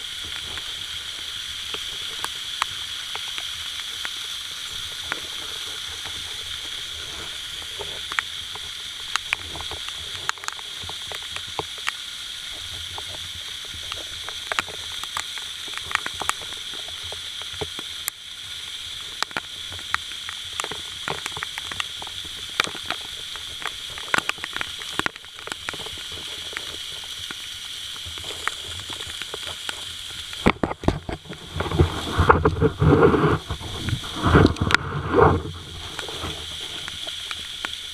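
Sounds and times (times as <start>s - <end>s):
sharp clicks and knocks: 30.4s - 37.8s.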